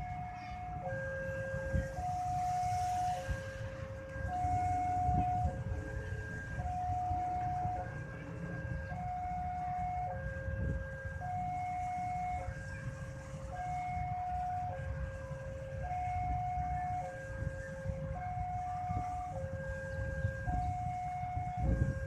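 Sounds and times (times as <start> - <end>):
two-tone level crossing alarm: 0.0 - 8.1, 13.5 - 22.0.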